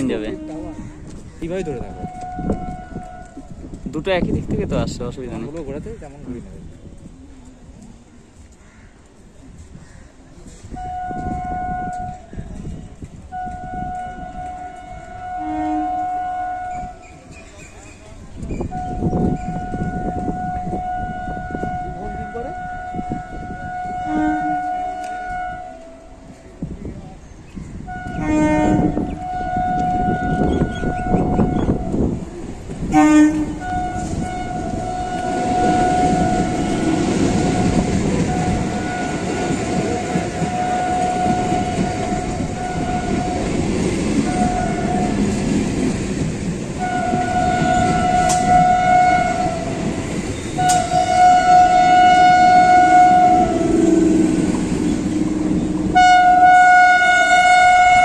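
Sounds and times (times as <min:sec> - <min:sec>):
electric train horn blasts: 0:00.0 - 0:01.1, 0:01.7 - 0:03.7, 0:10.7 - 0:12.4, 0:13.2 - 0:17.2, 0:18.6 - 0:26.4, 0:27.8 - 0:32.2, 0:32.9 - 0:45.5, 0:46.8 - 0:58.0
locomotive horn blast: 0:00.0 - 0:03.7, 0:10.7 - 0:12.4, 0:13.3 - 0:17.2, 0:18.6 - 0:26.4, 0:27.8 - 0:32.2, 0:32.9 - 0:45.5, 0:46.8 - 0:58.0
train rumble and wheel clatter: 0:00.0 - 0:58.0.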